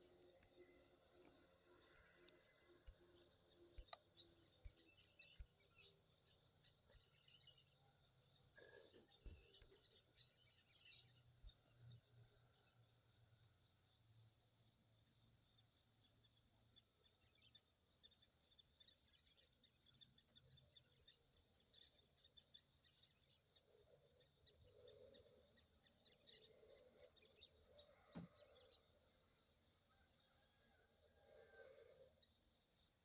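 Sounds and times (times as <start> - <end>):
crickets chirring: 0.0 - 19.4
faint click: 28.1 - 28.7.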